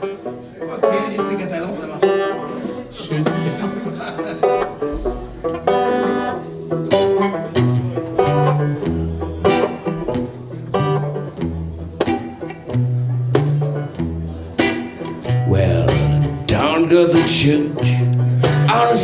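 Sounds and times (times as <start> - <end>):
banjo picking: 0.0 - 19.0
low bass line: 15.3 - 16.7.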